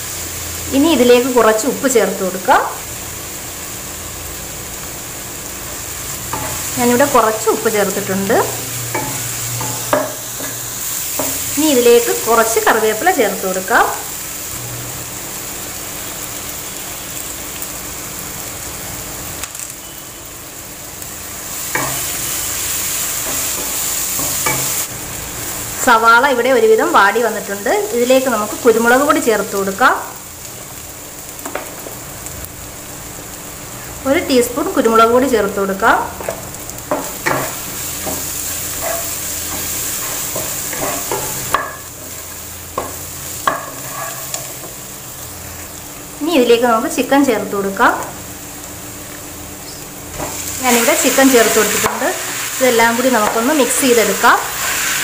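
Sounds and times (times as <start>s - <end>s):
onions sizzling in oil: 0.0s - 55.0s
spatula scraping a pan: 42.8s - 44.6s.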